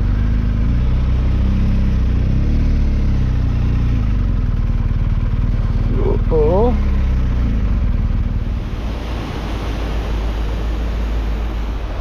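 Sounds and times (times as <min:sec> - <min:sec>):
motorcycle engine low drone: 0:00.0 - 0:12.0
wind rushing over microphone: 0:06.6 - 0:12.0.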